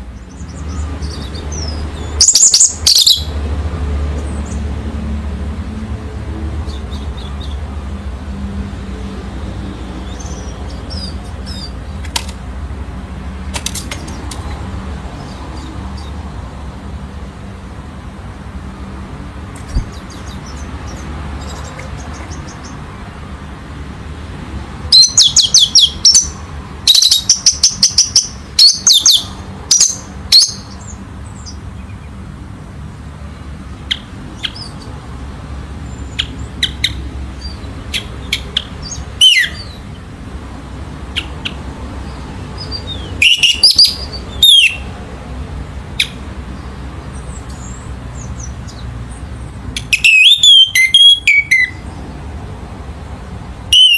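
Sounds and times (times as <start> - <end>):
thrush singing trilling notes: 42.6 - 44.9, 49.8 - 51.8, 53.7 - 53.9.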